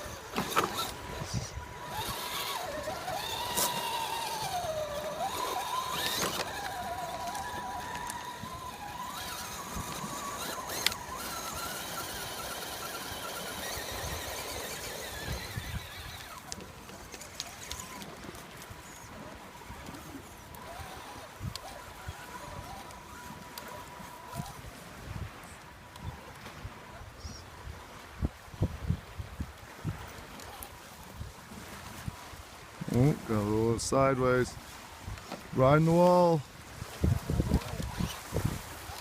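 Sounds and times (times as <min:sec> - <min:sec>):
electric motor and gears whining: 0:00.0 - 0:24.8, 0:37.1 - 0:39.0.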